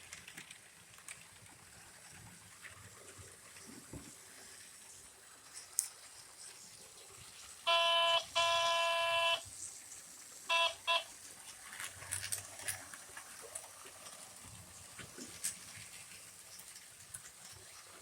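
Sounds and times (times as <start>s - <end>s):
model locomotive horn: 7.7s - 9.5s, 10.5s - 11.1s.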